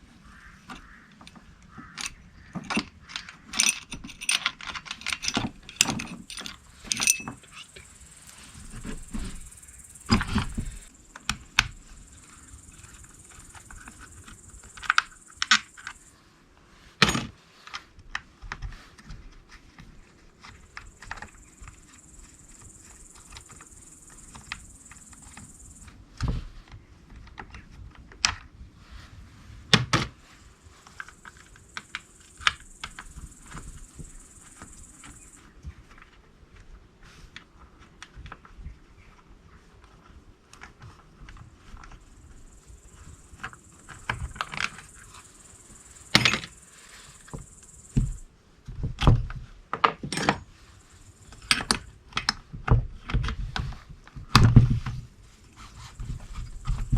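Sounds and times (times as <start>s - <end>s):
tools and parts clicking: 0.7s - 7.9s, 43.0s - 45.3s, 46.1s - 46.6s, 49.7s - 50.5s, 51.3s - 52.4s
high steady hiss: 5.2s - 17.8s, 20.4s - 27.0s, 29.0s - 40.2s, 40.9s - 52.5s.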